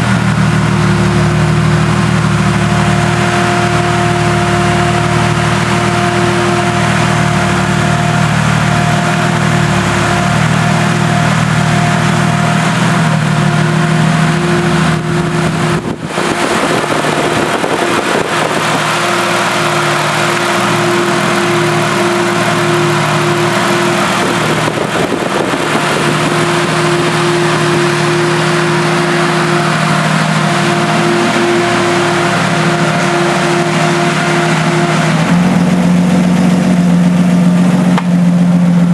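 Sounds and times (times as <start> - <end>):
car engine running: 0.0 - 38.9
engine ticking: 0.0 - 38.9.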